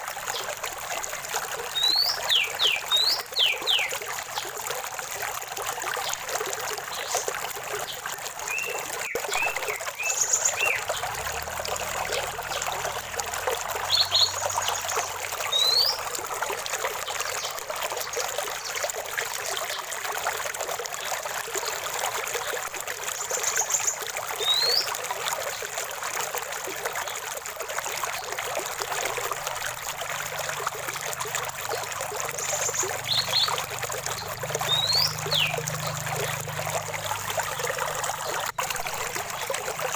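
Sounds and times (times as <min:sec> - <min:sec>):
stream water trickling: 0:00.0 - 0:39.9
bird chirping and whistling: 0:34.7 - 0:35.5.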